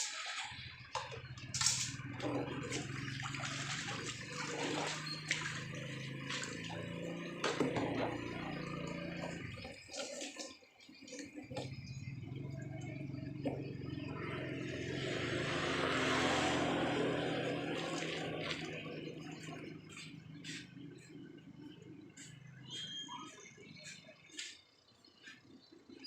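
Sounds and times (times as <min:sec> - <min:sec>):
tap water running into sink: 0:00.0 - 0:08.6.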